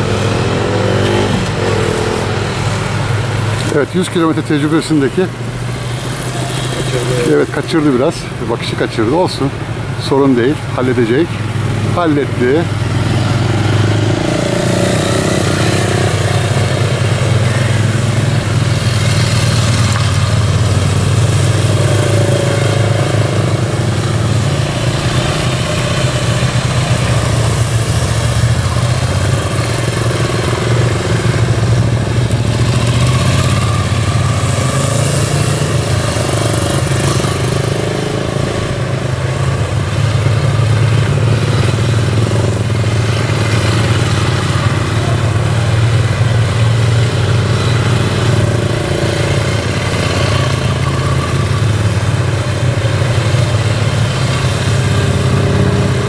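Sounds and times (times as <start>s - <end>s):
motorcycle engine running: 11.4s - 56.0s.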